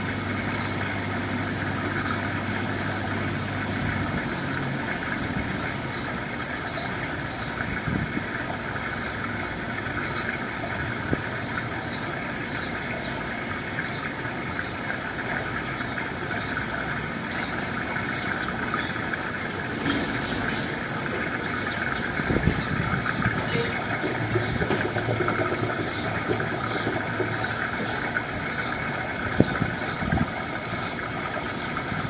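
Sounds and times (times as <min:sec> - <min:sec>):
engine idling with low hum: 0:00.0 - 0:32.0
faint short high chirps: 0:23.4 - 0:24.1.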